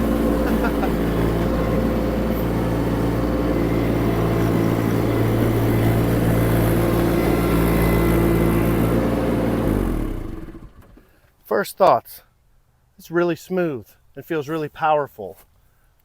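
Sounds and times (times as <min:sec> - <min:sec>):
diesel engine running: 0:00.0 - 0:11.2.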